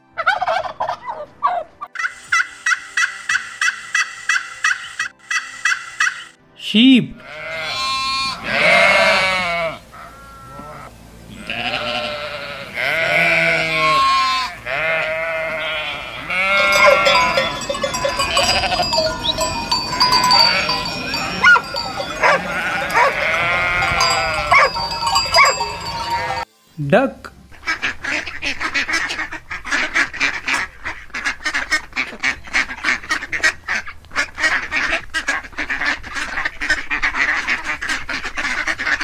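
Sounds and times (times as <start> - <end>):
sheep bleating: 7.2 - 26.5.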